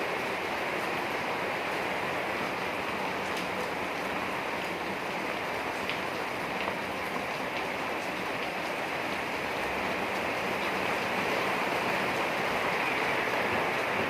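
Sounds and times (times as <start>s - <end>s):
steady rain hiss: 0.0s - 14.0s
faint raindrop ticks: 5.7s - 9.3s.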